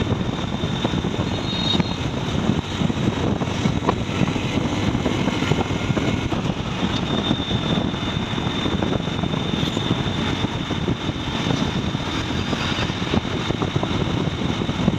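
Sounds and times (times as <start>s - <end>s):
truck engine and road noise: 0.0s - 14.9s
thin high whine: 0.1s - 2.2s.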